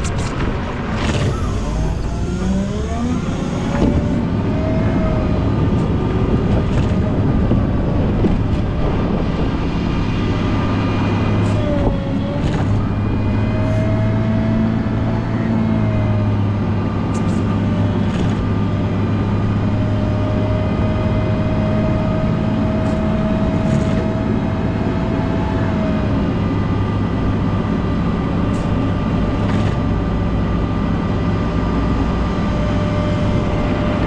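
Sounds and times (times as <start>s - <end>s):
thin whine: 0.0s - 9.0s
diesel engine running under load: 0.0s - 34.0s.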